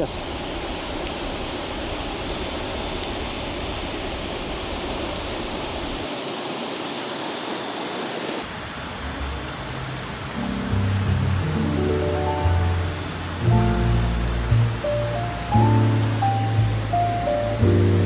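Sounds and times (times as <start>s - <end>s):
rushing river water: 0.0s - 18.0s
low music notes: 9.7s - 18.0s.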